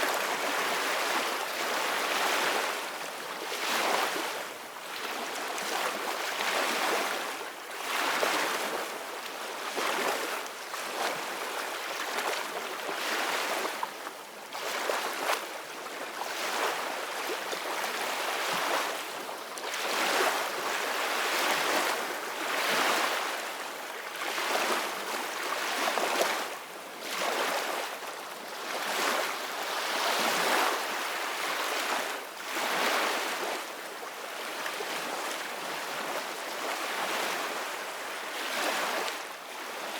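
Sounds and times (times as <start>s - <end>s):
ocean waves breaking on shore: 16.2s - 39.9s.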